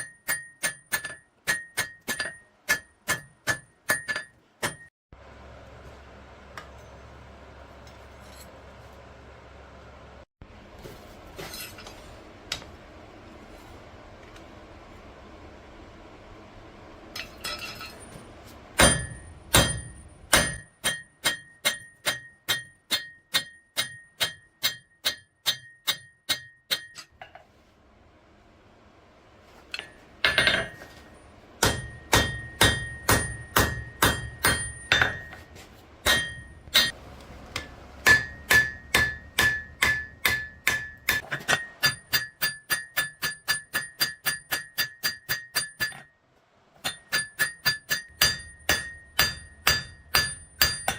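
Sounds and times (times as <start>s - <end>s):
hammer striking steel on an anvil: 0.0s - 4.9s, 18.8s - 27.4s, 29.7s - 46.2s, 46.8s - 50.9s.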